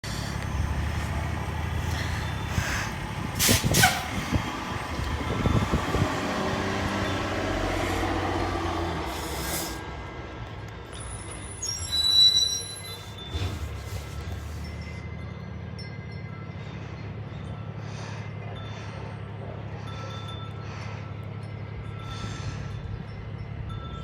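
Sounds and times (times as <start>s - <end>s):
diesel engine running: 0.0s - 24.0s
air brake hisses: 2.0s - 4.4s, 8.9s - 9.9s, 11.8s - 14.8s.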